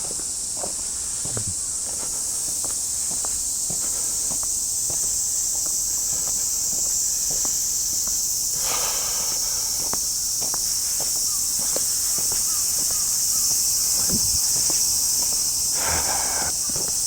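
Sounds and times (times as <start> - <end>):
cicadas droning: 0.0 - 17.0
footsteps on pavement: 0.0 - 17.0
scuffing rustle: 9.8 - 17.0.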